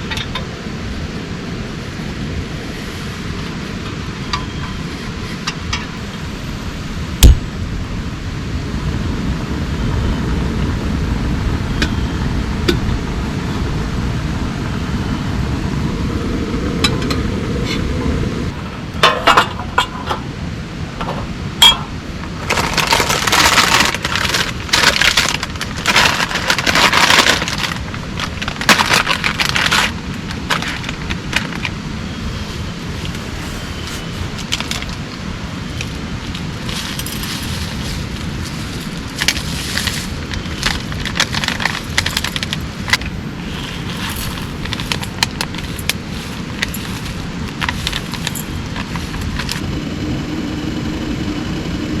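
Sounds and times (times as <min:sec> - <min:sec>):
steady rain: 0:00.0 - 0:52.0
crackling and scraping handling noise: 0:21.0 - 0:49.7.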